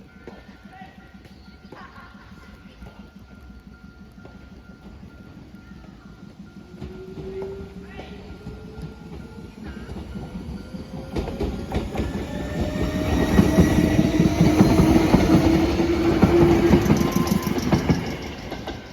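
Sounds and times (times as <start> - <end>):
train wheels clacking over rail joints: 6.6 - 18.9
electric train motor whine: 8.4 - 18.7.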